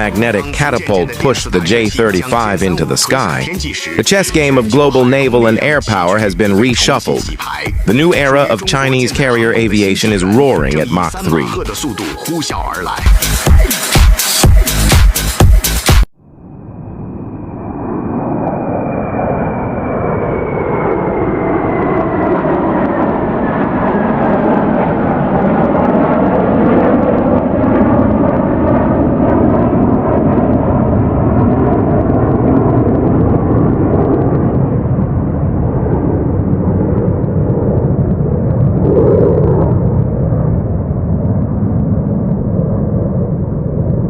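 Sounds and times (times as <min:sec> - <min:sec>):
jet engine whine and roar: 0:16.3 - 0:44.0.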